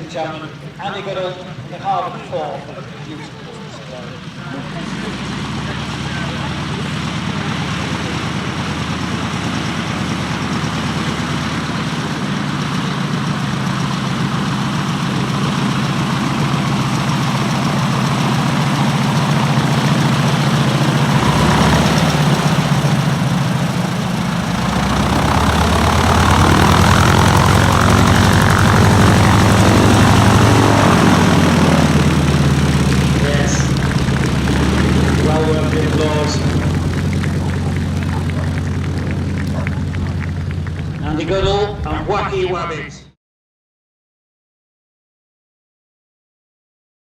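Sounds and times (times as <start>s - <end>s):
radial engine and propeller running: 0.0s - 42.9s.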